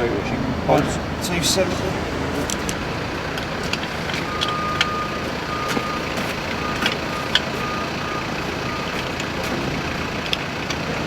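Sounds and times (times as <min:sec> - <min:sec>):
engine and street noise: 0:00.0 - 0:11.0
reversing alarm beeping: 0:00.9 - 0:10.2.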